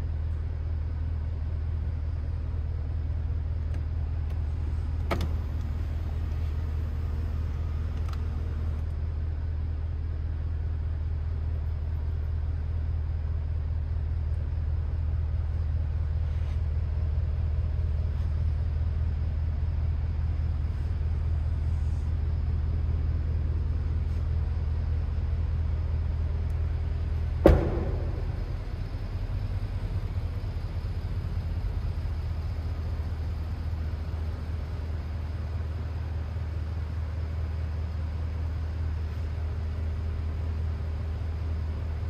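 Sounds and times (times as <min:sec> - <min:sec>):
car engine idling: 0:03.4 - 0:09.2, 0:16.8 - 0:35.8
sharp thump: 0:27.4 - 0:29.9.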